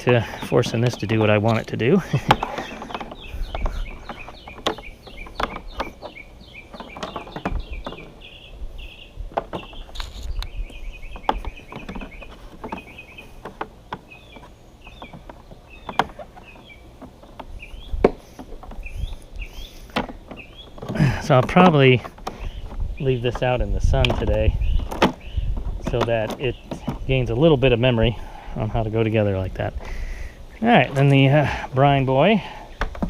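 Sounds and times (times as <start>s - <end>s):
plastic hoses knocking and clicking: 0.0s - 8.2s, 9.3s - 28.1s, 32.4s - 33.0s
bird chirping rapidly: 0.2s - 20.8s, 22.3s - 25.6s.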